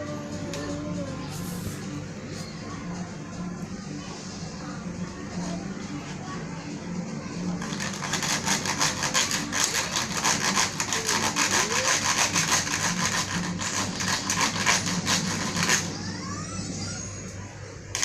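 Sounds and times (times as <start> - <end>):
hand saw cutting wood: 7.7 - 15.9.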